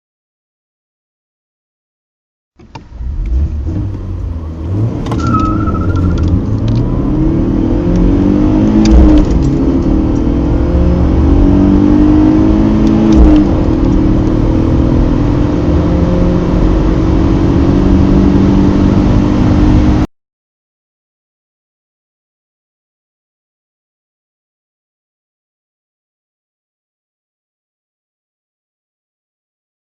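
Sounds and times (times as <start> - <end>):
car engine accelerating hard: 2.8 - 20.1.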